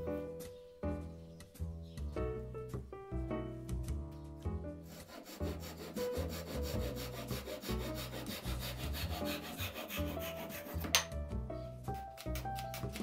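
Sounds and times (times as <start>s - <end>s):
background music: 0.0s - 13.0s
hand saw rasping through wood: 4.8s - 11.1s.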